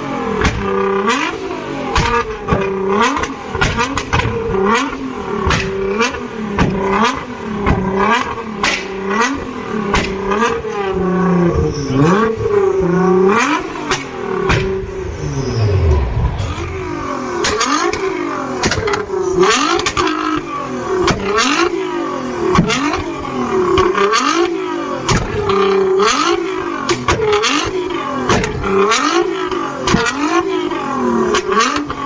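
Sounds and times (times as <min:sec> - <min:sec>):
sports car engine revving: 0:00.0 - 0:32.0
exhaust pops and cracks: 0:00.4 - 0:00.8, 0:02.0 - 0:04.6, 0:09.9 - 0:10.3, 0:25.1 - 0:25.6.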